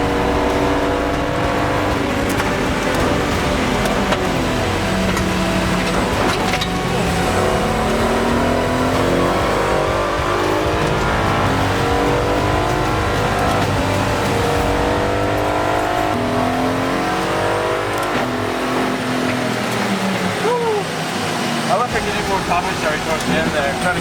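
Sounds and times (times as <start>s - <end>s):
race car engine shifting: 0.0s - 24.0s
tyre and road noise: 0.0s - 24.0s.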